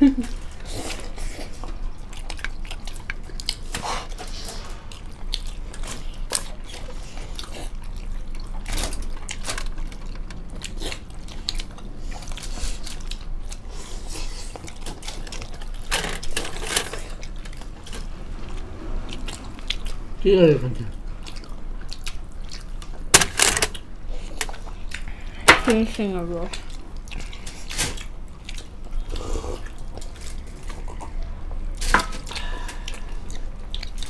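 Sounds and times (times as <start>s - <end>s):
people chewing soft food: 0.0s - 34.0s.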